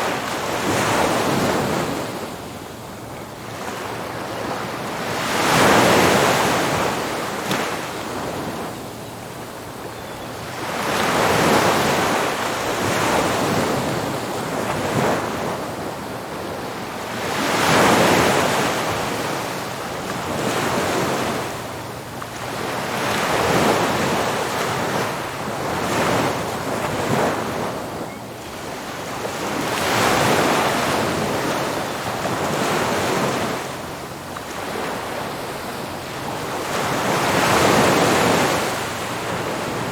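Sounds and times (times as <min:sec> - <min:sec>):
ocean waves crashing: 0:28.6 - 0:33.8.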